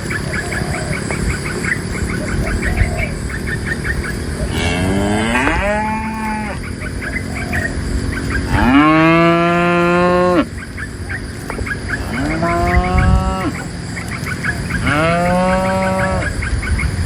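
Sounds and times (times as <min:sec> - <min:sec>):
cattle mooing: 0:04.5 - 0:06.7, 0:08.5 - 0:10.5, 0:12.0 - 0:13.7, 0:14.8 - 0:16.4.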